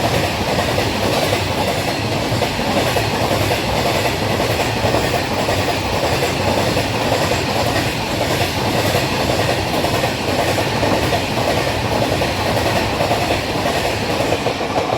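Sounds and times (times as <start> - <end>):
train wheels on track: 0.0 - 14.9.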